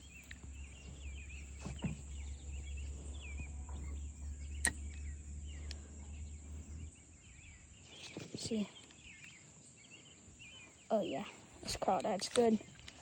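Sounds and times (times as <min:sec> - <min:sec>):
steady low rumble: 0:00.0 - 0:08.0
small birds chirping: 0:00.0 - 0:13.0.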